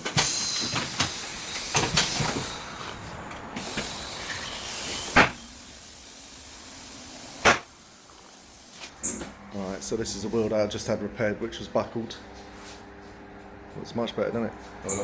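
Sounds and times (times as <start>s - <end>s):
hissing air: 0.0s - 8.9s.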